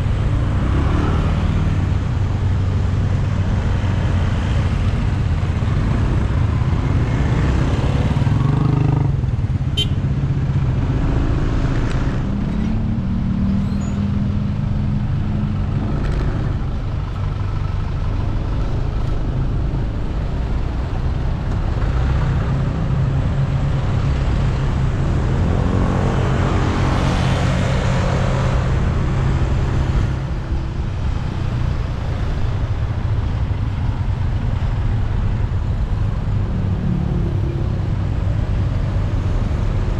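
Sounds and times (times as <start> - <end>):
motorcycles and cars passing: 0.0 - 39.9
brief high squeal: 13.6 - 14.1.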